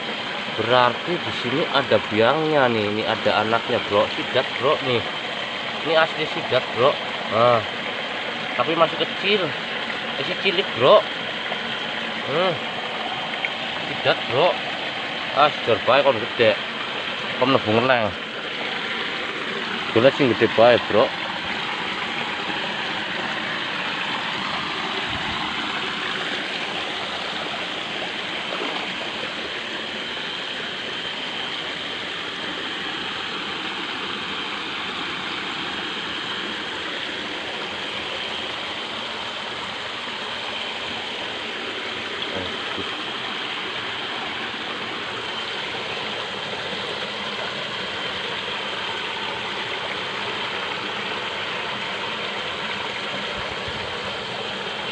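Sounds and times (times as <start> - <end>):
stream flowing: 0.0 - 54.9.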